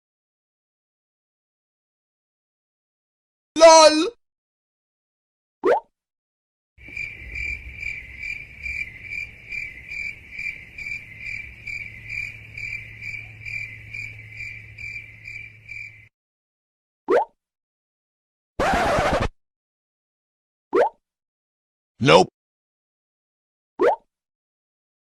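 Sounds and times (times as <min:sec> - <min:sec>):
cricket chirping: 0:06.8 - 0:16.1.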